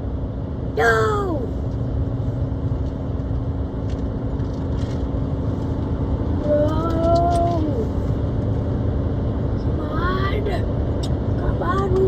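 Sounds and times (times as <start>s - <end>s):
road and engine rumble: 0.0s - 12.0s
drawn-out voiced cry: 0.8s - 1.6s.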